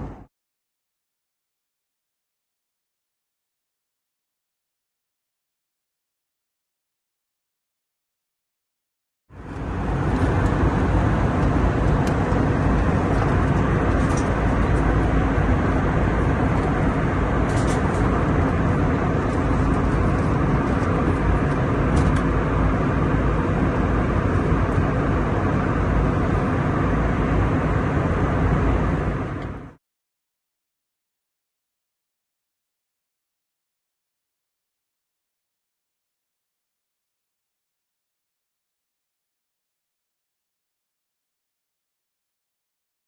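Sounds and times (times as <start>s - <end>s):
jet cabin roar: 0.0s - 0.3s, 9.3s - 29.8s.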